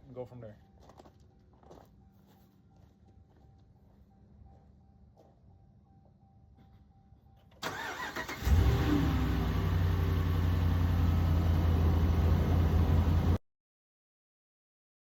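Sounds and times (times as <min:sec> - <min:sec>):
starter motor cranking: 0:07.6 - 0:09.4
car engine starting and idling: 0:07.6 - 0:13.4.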